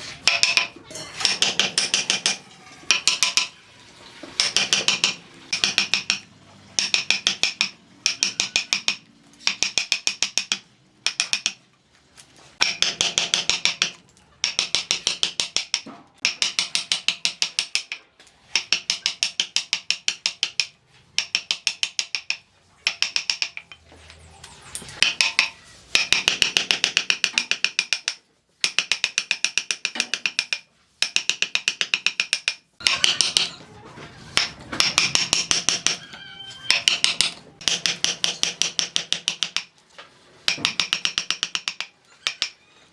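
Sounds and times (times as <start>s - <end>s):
ratchet clicking: 4.4s - 11.6s, 12.6s - 23.8s, 25.0s - 33.5s, 40.5s - 42.6s.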